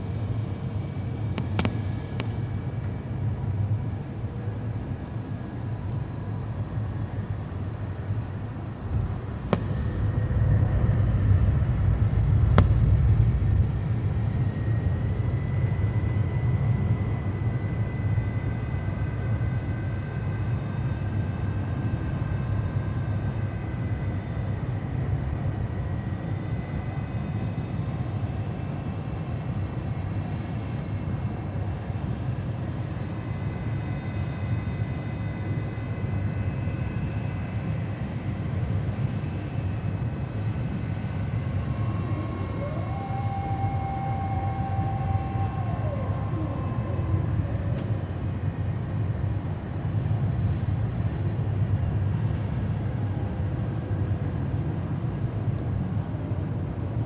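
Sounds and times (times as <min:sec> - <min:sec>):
faint high engine whine: 0:00.0 - 0:57.0
airplane cabin rumble: 0:07.9 - 0:18.0, 0:39.6 - 0:53.2.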